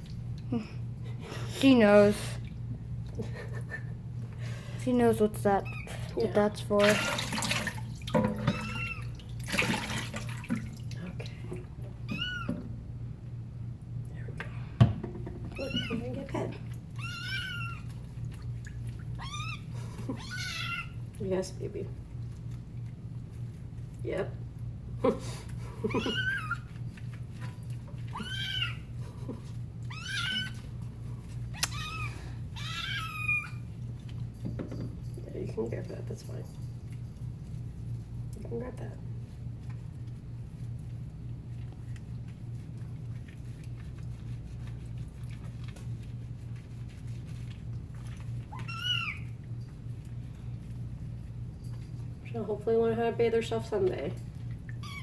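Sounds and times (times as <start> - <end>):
steady low hum: 0.0 - 55.0
water splashing: 6.0 - 11.4
kitten meowing: 17.0 - 17.9, 19.2 - 19.6, 20.2 - 20.9, 28.1 - 28.8, 29.9 - 30.6, 31.6 - 33.6, 48.5 - 49.3.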